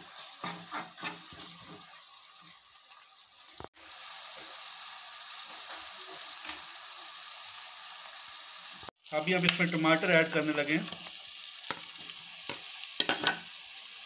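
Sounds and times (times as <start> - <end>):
metal spoon stirring and scraping: 0.0 - 2.1
food sizzling in oil: 0.0 - 14.0.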